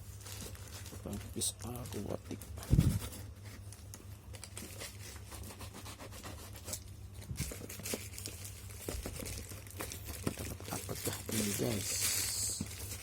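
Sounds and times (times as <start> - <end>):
packaging tearing and crinkling: 0.0 - 3.2, 6.6 - 13.0.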